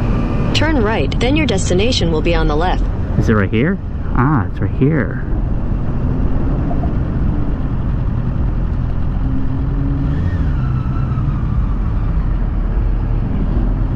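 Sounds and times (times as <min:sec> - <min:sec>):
faint whine falling in pitch: 0:04.1 - 0:12.9
motorcycle engine running: 0:05.2 - 0:13.9.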